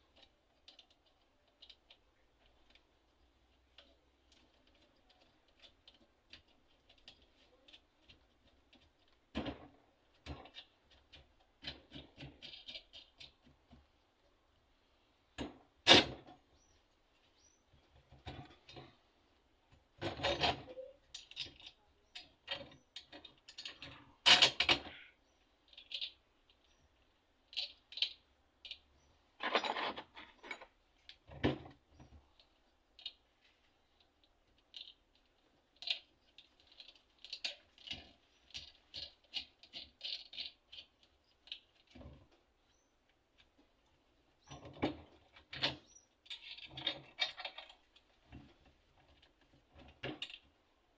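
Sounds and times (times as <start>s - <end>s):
metal parts clinking: 29.4s - 30.7s, 34.6s - 41.9s, 45.5s - 47.9s.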